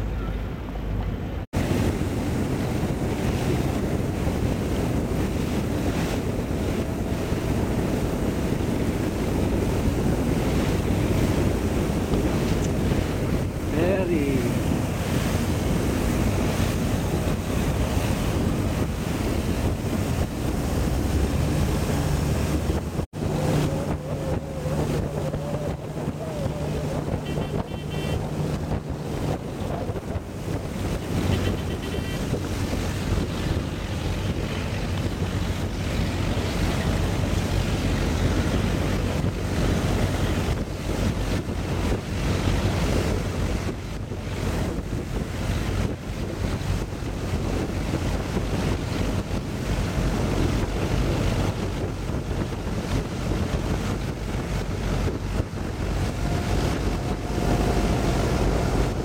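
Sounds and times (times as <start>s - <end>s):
rushing wind: 0.0s - 59.0s
water noise: 0.0s - 59.0s
wind buffeting microphone: 0.0s - 59.0s.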